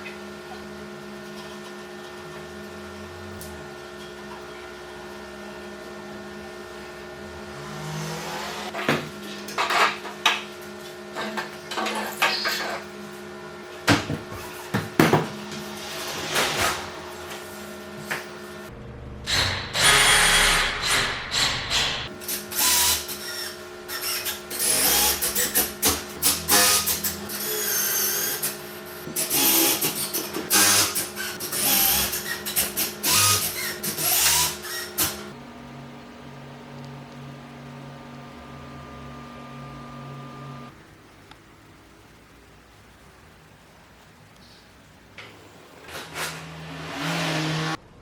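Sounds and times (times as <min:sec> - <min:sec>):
woodworking tool bursts: 0:19.2 - 0:28.6
steady low hum: 0:31.3 - 0:45.6.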